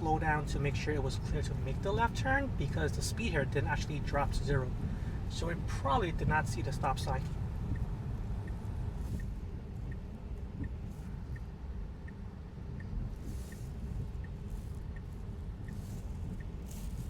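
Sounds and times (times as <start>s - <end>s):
car cabin rumble: 0.0s - 17.0s
turn signal ticking: 0.0s - 17.0s
soft swishes: 7.4s - 17.0s.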